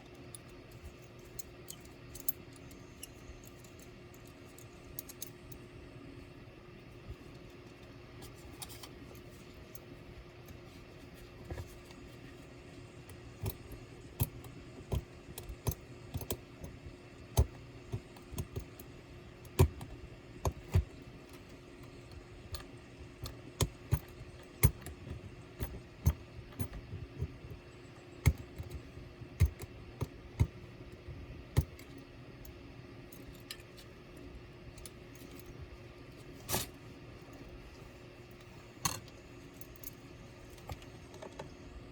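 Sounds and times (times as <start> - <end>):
low steady hum: 0.0 - 41.9.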